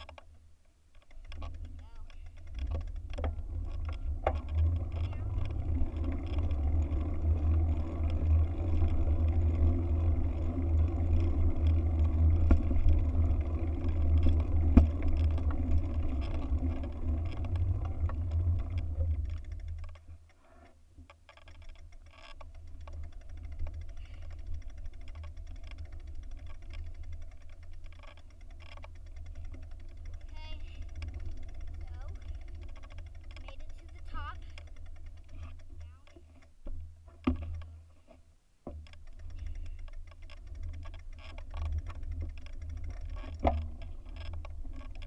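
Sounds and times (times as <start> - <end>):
faint ticks: 0.0 - 45.0.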